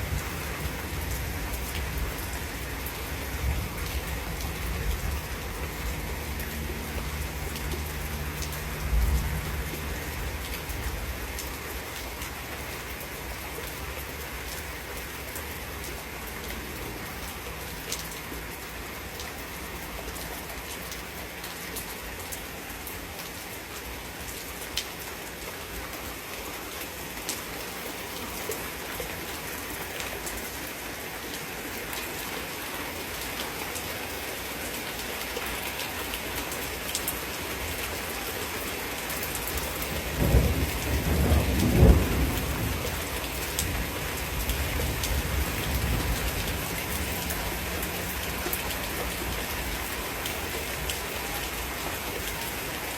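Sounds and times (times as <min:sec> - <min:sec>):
heavy rain falling: 0:00.0 - 0:52.9
water drips ticking: 0:05.8 - 0:12.3
thunderclap rumbling: 0:39.9 - 0:46.6.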